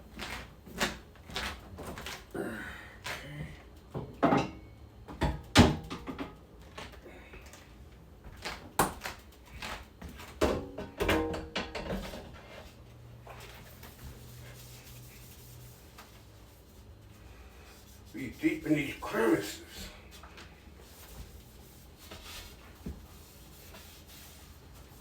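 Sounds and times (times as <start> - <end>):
refrigerator shelves and drawers clattering: 0.0 - 2.3, 3.0 - 7.0, 8.3 - 14.0.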